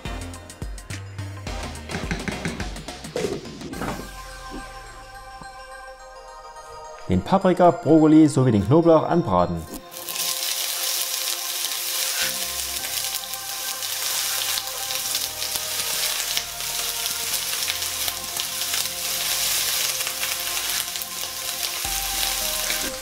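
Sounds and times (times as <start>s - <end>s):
vegetables sizzling in pan: 9.9s - 23.0s.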